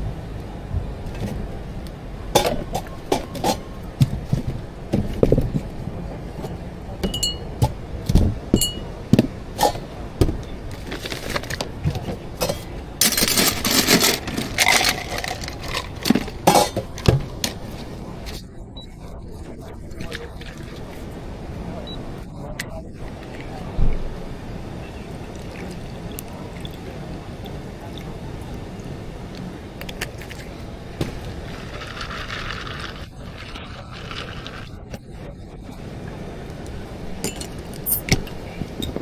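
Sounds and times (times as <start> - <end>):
cups and glassware clinking: 2.3 - 10.5, 11.2 - 17.6, 37.2 - 39.0.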